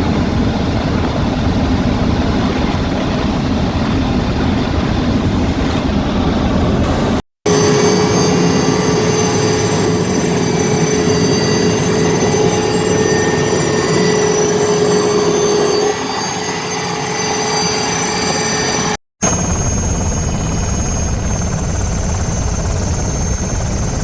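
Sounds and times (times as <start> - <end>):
helicopter rotor and turbine: 0.0 - 24.0
high whine: 1.0 - 24.0
thin high tones: 7.5 - 19.0.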